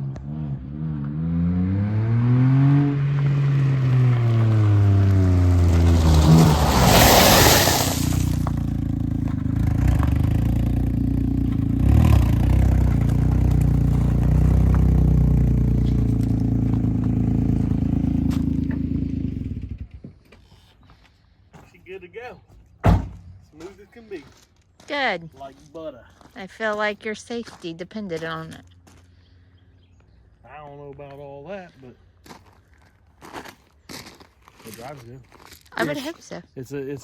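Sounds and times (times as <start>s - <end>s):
car engine and tyre noise: 0.0s - 21.2s, 28.6s - 34.9s
loud rushing scrape: 4.4s - 8.7s.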